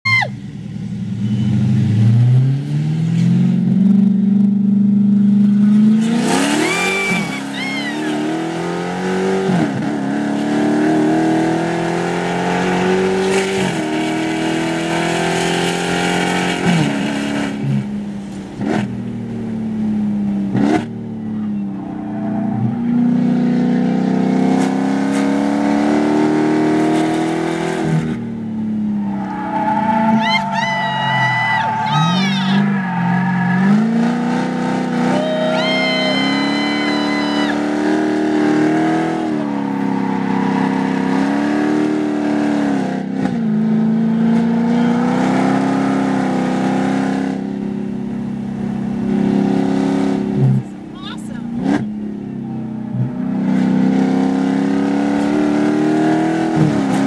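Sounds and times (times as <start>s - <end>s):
car engine revving in cabin: 18.6s - 50.8s, 51.4s - 57.0s.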